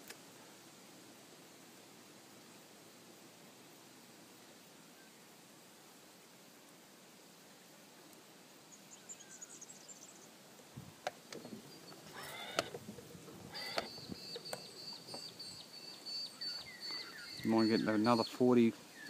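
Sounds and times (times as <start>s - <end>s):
faint bird calls: 11.2s - 19.0s.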